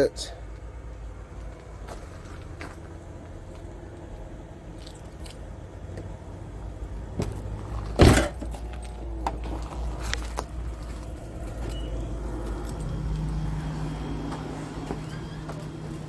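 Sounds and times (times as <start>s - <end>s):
steady low rumble: 0.4s - 14.8s
loud thump: 8.0s - 8.5s.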